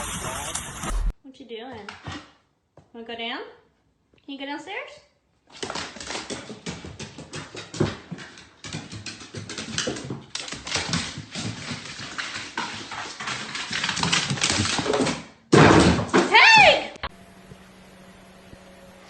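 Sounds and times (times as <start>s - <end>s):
dog clicks and taps: 5.5s - 15.2s.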